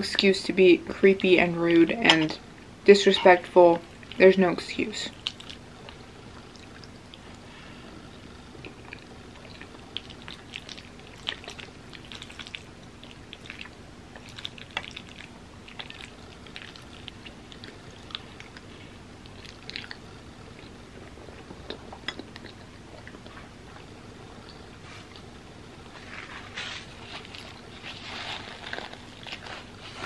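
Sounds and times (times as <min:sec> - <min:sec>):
chewing with wet mouth clicks: 0:05.1 - 0:07.4, 0:08.1 - 0:25.3.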